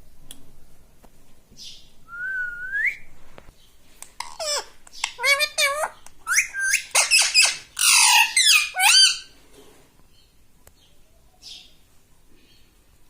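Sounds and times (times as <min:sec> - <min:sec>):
parrot squawking: 0:04.2 - 0:09.4.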